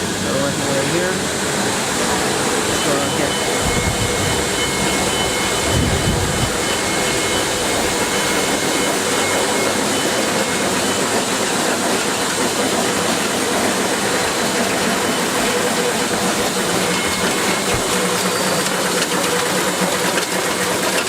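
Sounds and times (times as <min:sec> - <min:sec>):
factory machinery noise: 0:00.0 - 0:21.0
faint high steady tones: 0:02.0 - 0:11.4.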